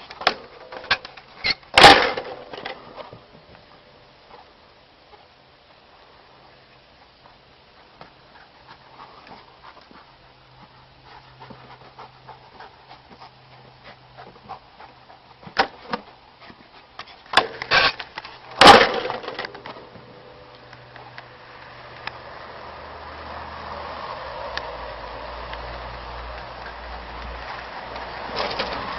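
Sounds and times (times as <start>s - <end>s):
dog panting: 7.0s - 17.4s
loud clatter: 18.6s - 19.6s.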